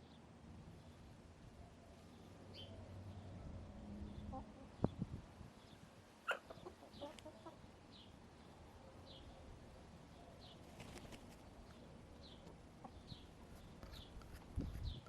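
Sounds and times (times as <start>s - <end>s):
faint wild birds chirping: 0.0s - 15.0s
hens clucking: 6.3s - 7.6s.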